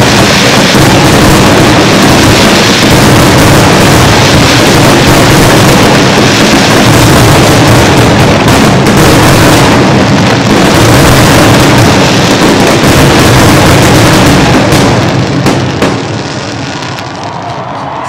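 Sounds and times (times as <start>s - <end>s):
fireworks bursts and bangs: 0.0s - 18.0s.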